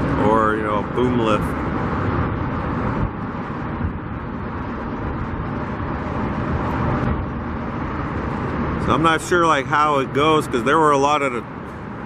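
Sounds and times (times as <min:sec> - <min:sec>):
distant traffic: 0:00.0 - 0:12.0
wind buffeting microphone: 0:01.6 - 0:08.9.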